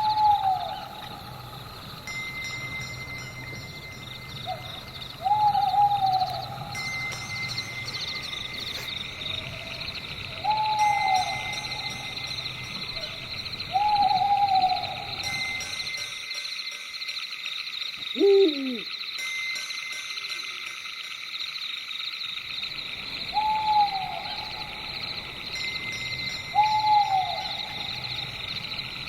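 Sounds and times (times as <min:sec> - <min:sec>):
owl hooting: 0:00.0 - 0:01.6, 0:04.4 - 0:06.8, 0:09.4 - 0:15.5, 0:18.1 - 0:19.0, 0:23.2 - 0:24.9, 0:26.5 - 0:28.4
high pulsing chirr: 0:00.0 - 0:19.3, 0:20.2 - 0:29.0.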